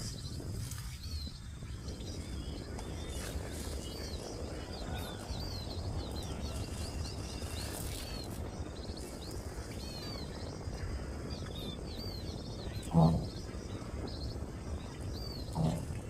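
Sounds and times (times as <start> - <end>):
small birds chirping: 0.0 - 16.0
low rumble: 10.3 - 16.0.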